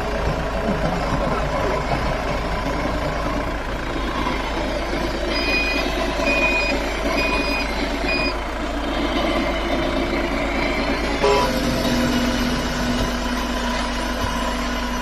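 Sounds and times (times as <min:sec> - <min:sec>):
engine running rumble: 0:00.0 - 0:15.0
vehicle reversing alarm beeping: 0:04.0 - 0:08.4, 0:09.0 - 0:13.2.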